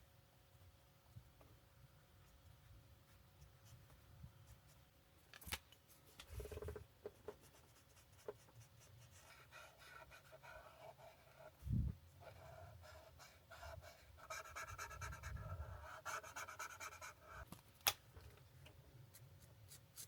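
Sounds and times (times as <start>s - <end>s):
marker scratching on paper: 7.4s - 11.5s, 12.2s - 17.4s.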